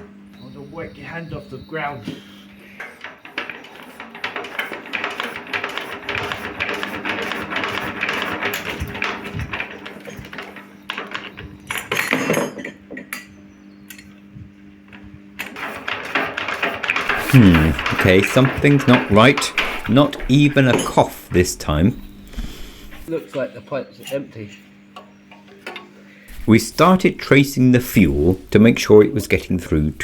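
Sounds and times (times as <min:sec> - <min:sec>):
diesel engine cranking clatter: 0:02.7 - 0:12.0, 0:15.4 - 0:23.1.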